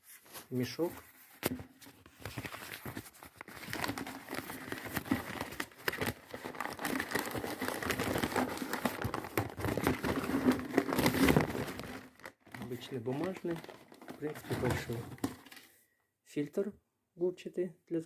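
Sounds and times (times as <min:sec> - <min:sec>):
paper bag crinkling: 0:01.9 - 0:15.6.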